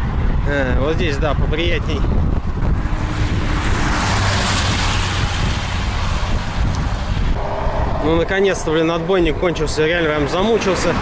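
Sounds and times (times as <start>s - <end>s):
passing vehicle: 0.0s - 11.0s
wind buffeting microphone: 0.0s - 11.0s.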